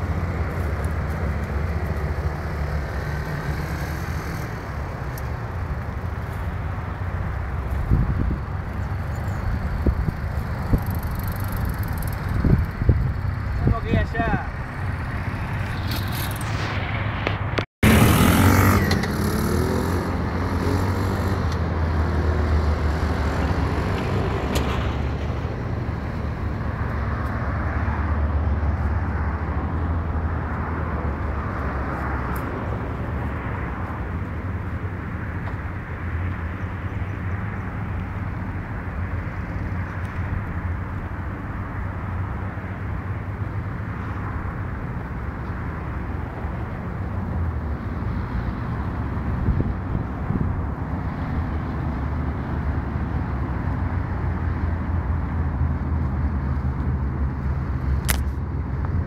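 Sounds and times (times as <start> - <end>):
atv engine revving: 8.8 - 13.6, 17.8 - 25.3.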